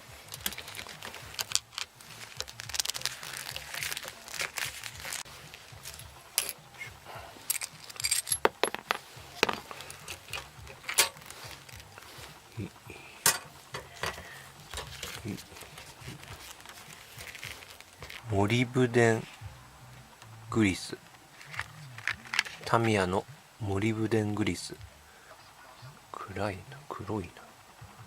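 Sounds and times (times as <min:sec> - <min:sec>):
clicks and knocks of hard parts: 0:07.5 - 0:11.9.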